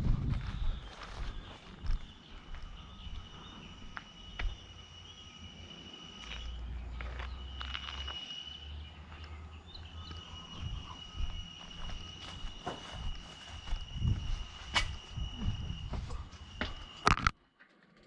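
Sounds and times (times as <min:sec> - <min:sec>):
scattered footsteps: 0:00.0 - 0:04.7, 0:09.1 - 0:17.3
steady high-pitched tone: 0:00.2 - 0:17.4
low rumble: 0:13.8 - 0:16.3.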